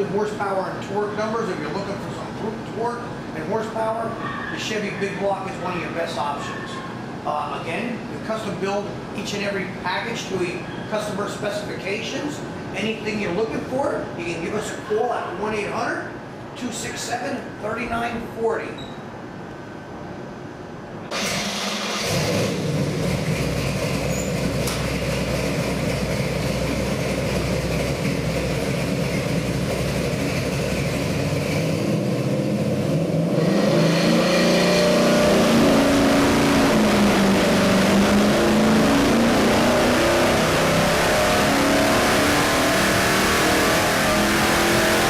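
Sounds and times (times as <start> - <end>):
car engine revving: 21.1 - 45.0.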